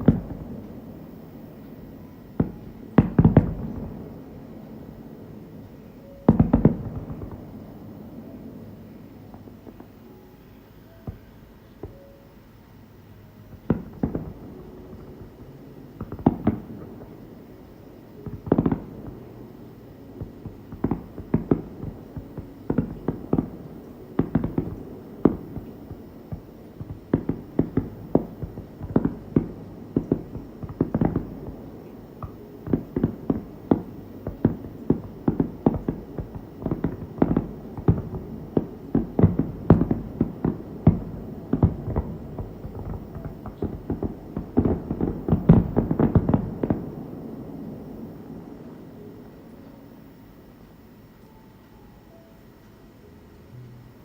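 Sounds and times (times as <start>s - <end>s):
fireworks bursting with sharp bangs: 0.0s - 51.4s.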